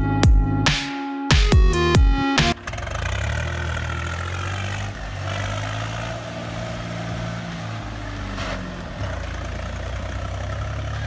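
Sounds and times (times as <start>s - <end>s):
vehicle engine droning: 2.4s - 11.0s.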